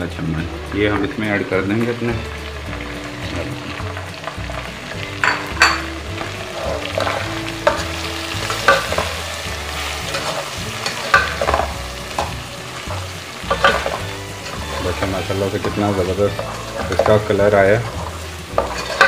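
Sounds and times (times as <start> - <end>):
chicken sizzling in hot oil: 0.0 - 19.0
wooden spoon scraping a pot: 8.5 - 19.0.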